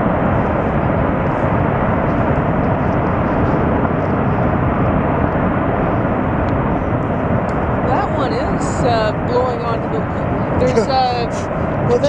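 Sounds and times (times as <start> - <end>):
ice avalanche rumbling: 7.3 - 12.0.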